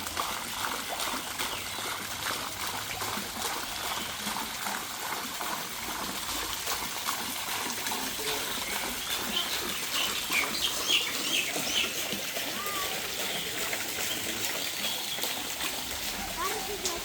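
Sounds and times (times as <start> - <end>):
water trickling and splashing: 0.0 - 17.0
high bird chirps: 8.6 - 12.0.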